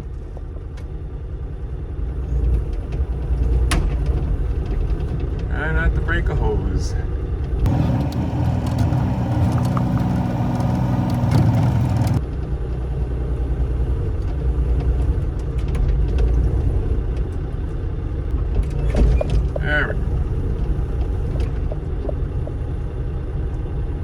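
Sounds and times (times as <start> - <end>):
mini excavator diesel engine running: 7.1 - 24.0.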